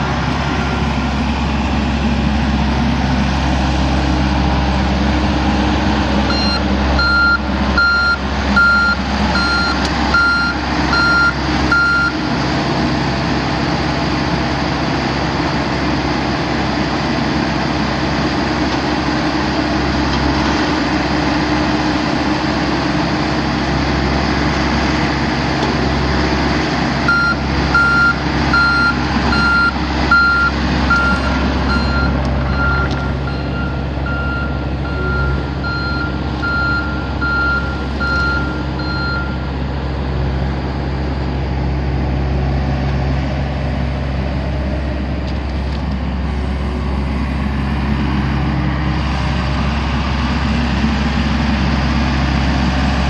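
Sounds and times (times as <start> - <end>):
diesel engine running: 0.0 - 53.0
travel alarm beeping: 6.3 - 12.2, 27.1 - 39.5.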